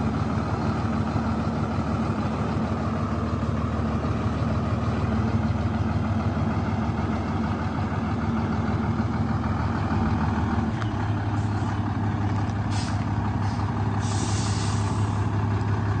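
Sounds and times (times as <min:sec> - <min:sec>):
diesel truck engine idling: 0:00.0 - 0:16.0
compressed air hisses: 0:12.7 - 0:15.2.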